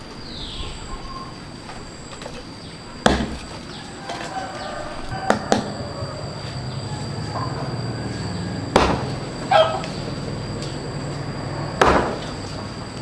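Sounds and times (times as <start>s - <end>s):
blade chopping into wood: 3.0s - 3.7s, 8.8s - 9.2s, 11.8s - 12.4s.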